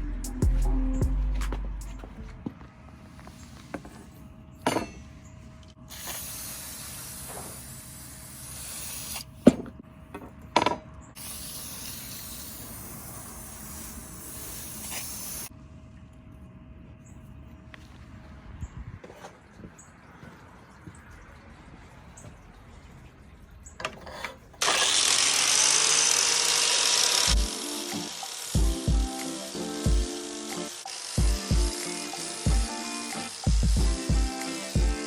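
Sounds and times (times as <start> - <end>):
hissing sprays: 5.9 - 9.3, 11.2 - 15.5, 24.6 - 35.0.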